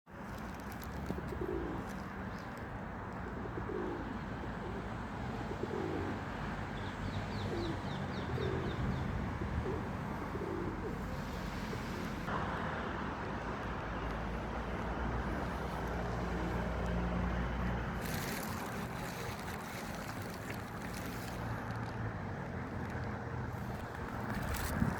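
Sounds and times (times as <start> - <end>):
outdoor background noise: 0.1 - 24.9
pigeons cooing: 0.9 - 2.5, 3.2 - 6.3, 7.3 - 12.3, 16.1 - 16.9.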